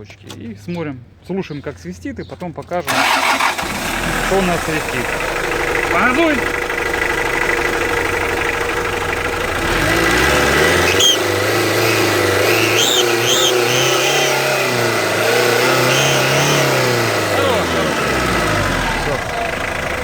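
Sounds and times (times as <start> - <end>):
diesel engine revving: 2.9 - 20.0
short high chirps: 11.9 - 14.5.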